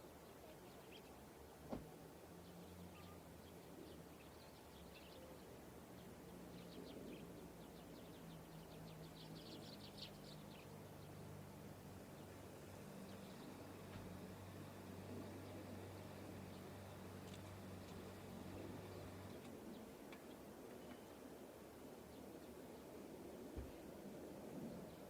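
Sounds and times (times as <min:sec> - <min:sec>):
low steady hum: 0:00.0 - 0:25.0
faint bird chirps: 0:02.4 - 0:11.2.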